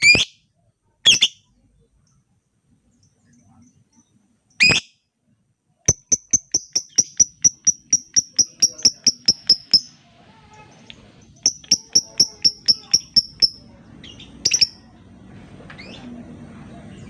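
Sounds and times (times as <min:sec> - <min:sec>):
bird chirping rapidly: 0:00.0 - 0:00.4, 0:01.1 - 0:01.5, 0:04.6 - 0:04.9, 0:05.9 - 0:10.0, 0:11.2 - 0:14.9.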